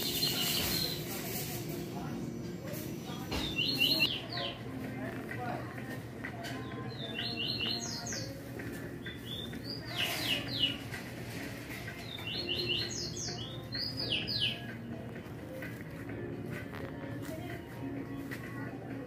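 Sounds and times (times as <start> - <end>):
small bird singing: 0.0 - 1.2, 3.1 - 4.8, 6.4 - 11.0, 11.8 - 15.0.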